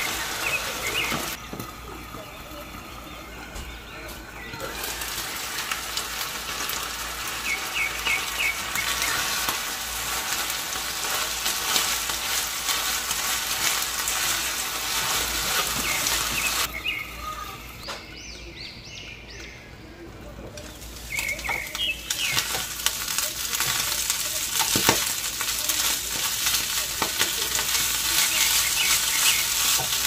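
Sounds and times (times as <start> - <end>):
fish sizzling in a pan: 0.0 - 17.8, 20.6 - 30.0
wooden spatula stirring: 4.6 - 16.7, 20.6 - 30.0.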